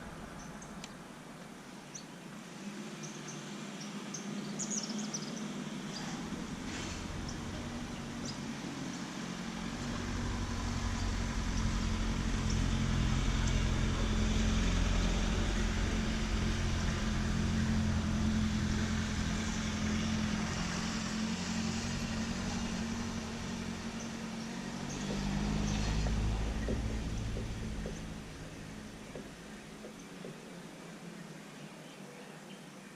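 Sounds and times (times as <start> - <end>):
vehicle engine passing by: 5.1 - 30.3.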